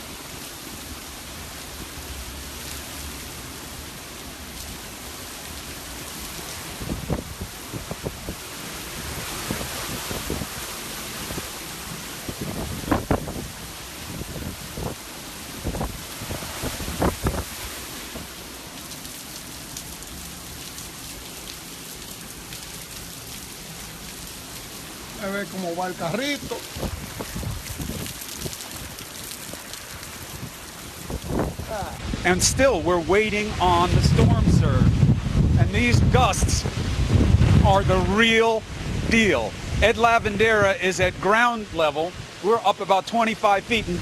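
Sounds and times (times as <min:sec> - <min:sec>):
driving rain: 0:00.0 - 0:44.0
hurricane wind: 0:00.0 - 0:44.0
wind rumbling on microphone: 0:06.0 - 0:18.4, 0:26.3 - 0:41.2
raindrop ticks: 0:26.0 - 0:31.3.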